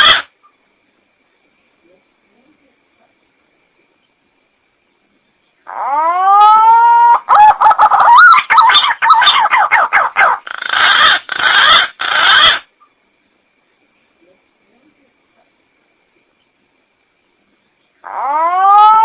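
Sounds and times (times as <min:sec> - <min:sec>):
pigeon calling: 0:00.0 - 0:00.3, 0:05.7 - 0:12.7, 0:18.0 - 0:19.0.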